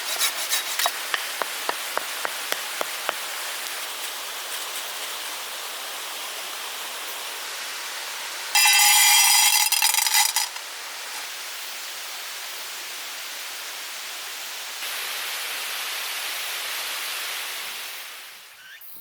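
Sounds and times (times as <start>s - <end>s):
stream rushing over rocks: 0.0s - 8.5s.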